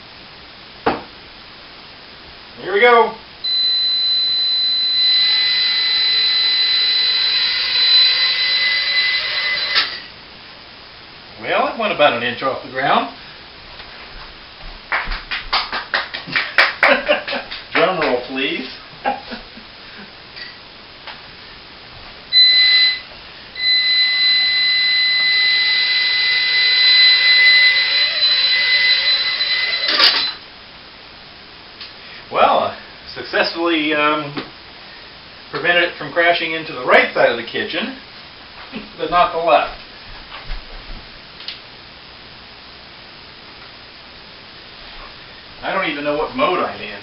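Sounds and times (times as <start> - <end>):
quadcopter motors whining: 4.3 - 10.0, 23.6 - 30.4.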